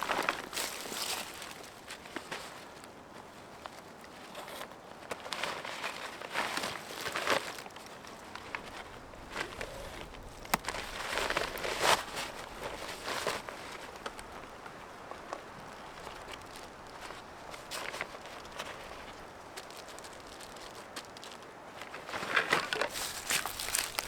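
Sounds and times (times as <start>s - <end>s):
rustling and crunching: 0.0s - 24.0s
footsteps: 22.7s - 24.0s.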